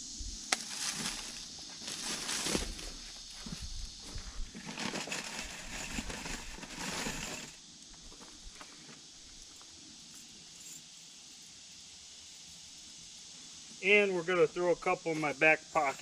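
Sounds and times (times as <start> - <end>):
rustling and crunching of dry ground: 0.0 - 10.8.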